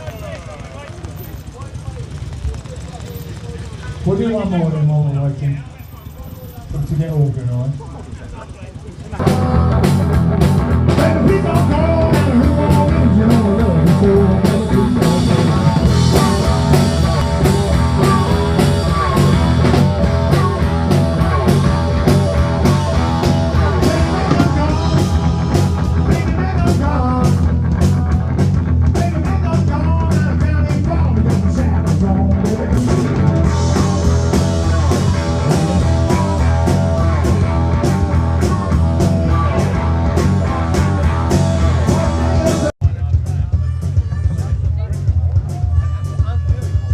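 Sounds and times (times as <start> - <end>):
electric guitar: 9.2 - 42.7
drum kit: 9.2 - 46.9.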